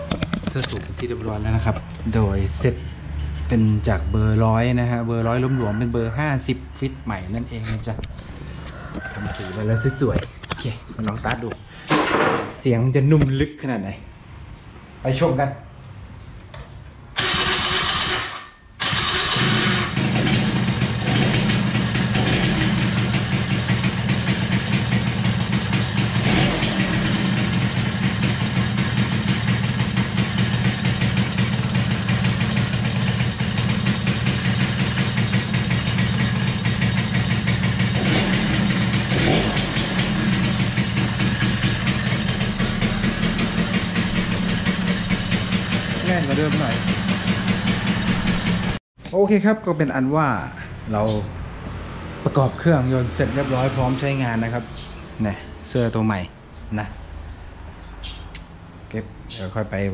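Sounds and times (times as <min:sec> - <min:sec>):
motorcycle engine starting and idling: 0:08.0 - 0:10.0, 0:17.1 - 0:48.8.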